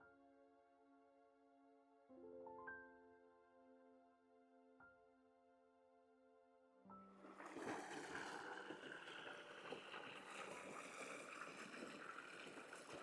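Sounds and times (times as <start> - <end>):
brook running over rocks: 7.2 - 13.0.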